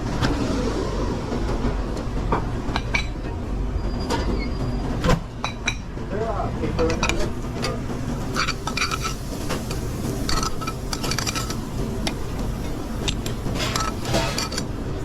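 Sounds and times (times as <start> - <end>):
steady low rumble: 0.0 - 4.0, 4.7 - 15.0
pans and utensils clinking: 6.8 - 14.8.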